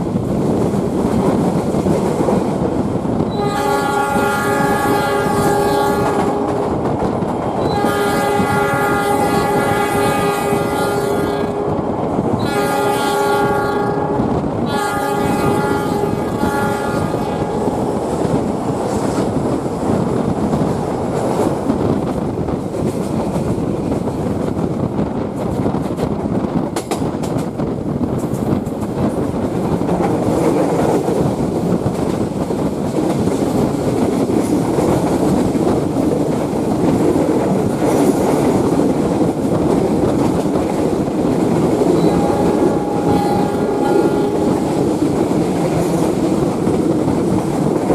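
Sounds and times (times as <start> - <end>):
train rumbling on rails: 0.0 - 47.9
train horn blasts: 3.3 - 6.8, 7.6 - 18.0, 41.8 - 44.8.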